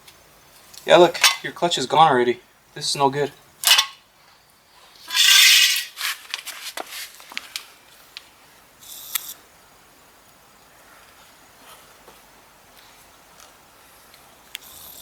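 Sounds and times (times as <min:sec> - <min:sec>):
metal parts clinking: 0:03.6 - 0:04.0, 0:05.1 - 0:06.2
metal parts scraping: 0:03.6 - 0:04.0, 0:05.0 - 0:06.5.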